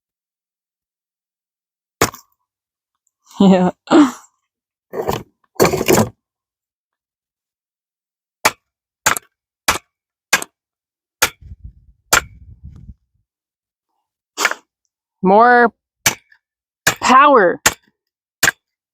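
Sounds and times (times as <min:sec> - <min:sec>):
axe striking a log: 0:02.0 - 0:02.3, 0:08.4 - 0:10.6, 0:11.2 - 0:11.4, 0:12.1 - 0:12.4, 0:16.0 - 0:18.8.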